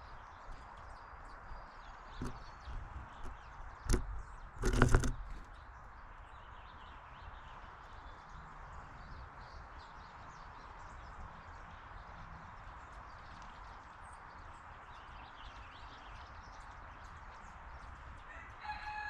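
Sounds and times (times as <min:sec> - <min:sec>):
clattering knock: 0:02.2 - 0:05.5
sharp knock: 0:03.2 - 0:05.5.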